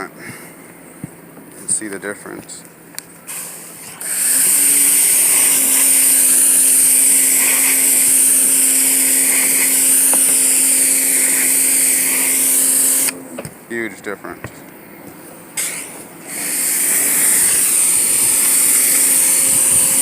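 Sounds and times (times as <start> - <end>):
pressure washer spraying: 3.3 - 13.2, 15.6 - 20.0
pump hum: 3.6 - 13.4.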